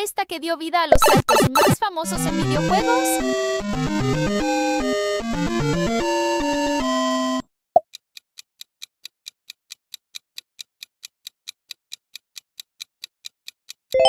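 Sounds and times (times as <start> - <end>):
countdown timer ticking: 0.9 - 7.4.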